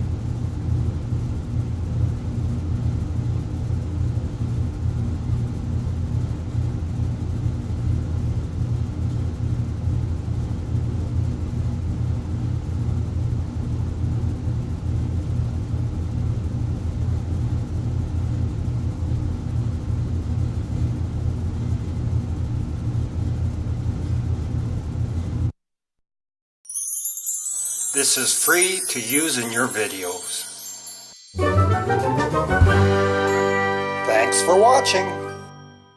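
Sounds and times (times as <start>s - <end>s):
furnace rumbling and humming: 0.0s - 25.5s.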